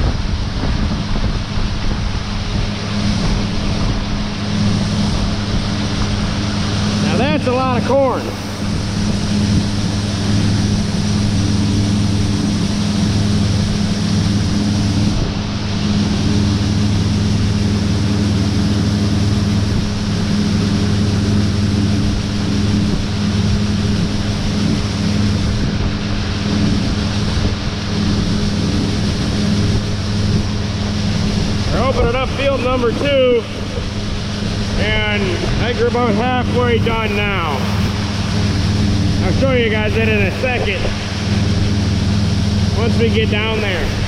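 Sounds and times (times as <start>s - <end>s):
deep engine hum: 0.0s - 44.0s
grain rushing: 0.0s - 44.0s.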